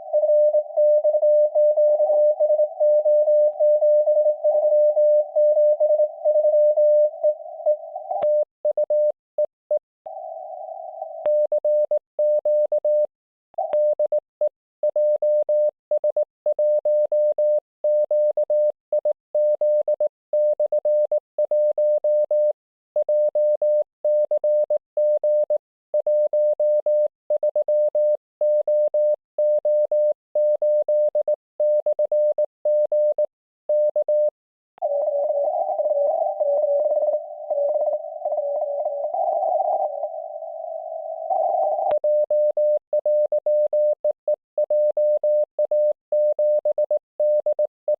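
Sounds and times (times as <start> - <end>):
morse code tone: 26.6 - 47.9.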